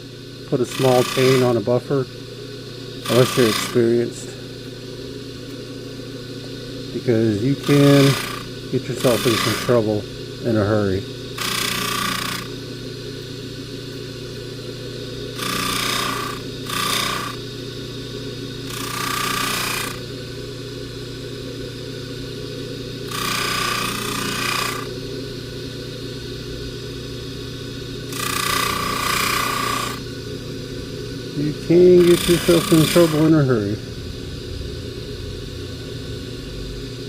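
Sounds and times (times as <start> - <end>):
polishing buffer motor humming: 0.0 - 37.0
chain rasping against buffing wheel: 0.6 - 1.6, 3.1 - 4.0, 7.5 - 9.8, 31.6 - 33.4.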